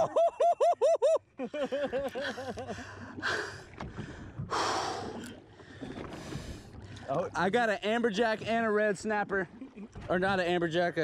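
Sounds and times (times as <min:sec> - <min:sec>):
man laughing: 0:00.0 - 0:03.0.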